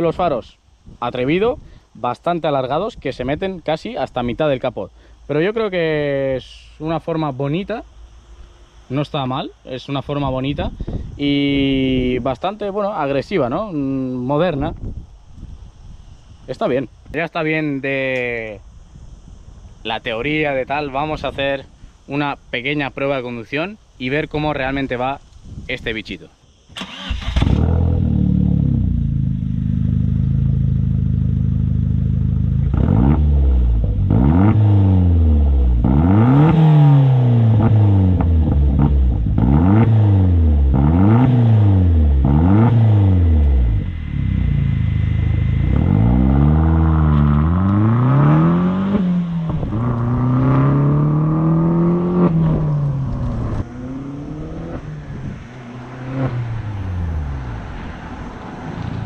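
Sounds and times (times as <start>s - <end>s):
car engine revving: 26.8s - 59.0s.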